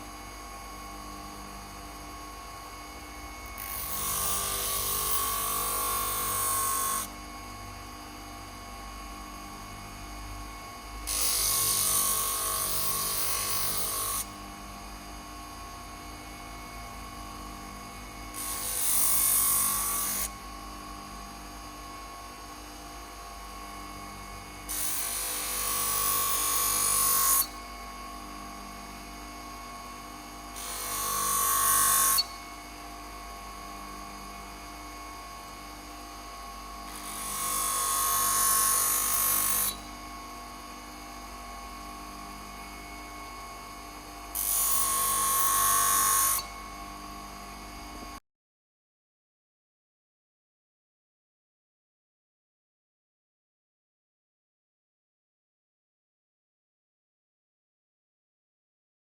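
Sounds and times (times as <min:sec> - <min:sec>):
power tool motor hum: 0:03.4 - 0:07.2, 0:11.1 - 0:14.4, 0:18.3 - 0:20.4, 0:24.7 - 0:27.6, 0:30.5 - 0:32.4, 0:36.8 - 0:40.1, 0:44.3 - 0:46.8.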